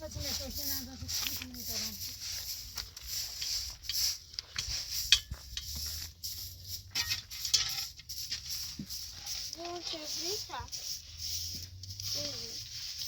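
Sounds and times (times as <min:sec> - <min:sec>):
objects clinking and knocking: 0:06.8 - 0:09.7.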